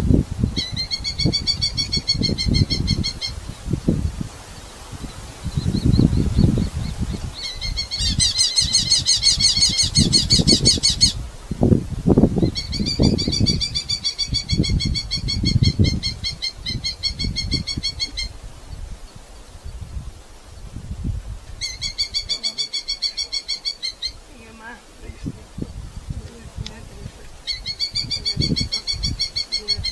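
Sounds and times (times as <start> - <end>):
falcon chattering calls: 7.4 - 11.2, 21.6 - 24.2, 27.4 - 29.9.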